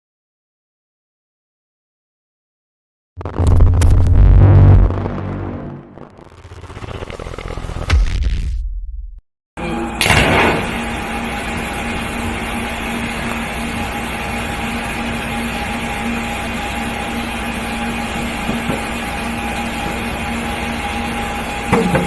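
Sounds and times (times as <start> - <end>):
firework flame burst: 3.2 - 7.8, 10.0 - 13.0.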